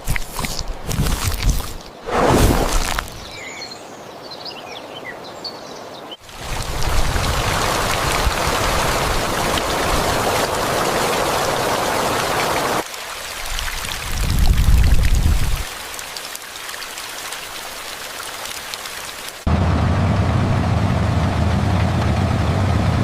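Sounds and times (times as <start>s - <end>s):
steady rain: 6.2s - 19.8s.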